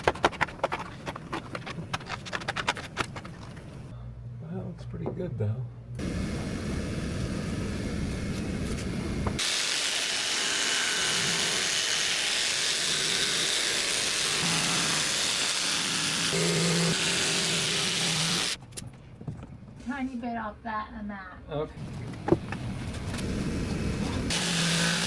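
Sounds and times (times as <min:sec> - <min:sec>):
power tool cutting panel: 0:09.4 - 0:18.6, 0:23.2 - 0:25.0.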